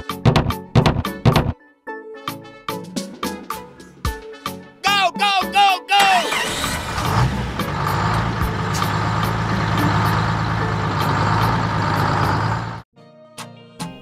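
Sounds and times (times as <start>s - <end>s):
light music: 0.0s - 11.8s
diesel tractor engine droning: 6.1s - 12.9s.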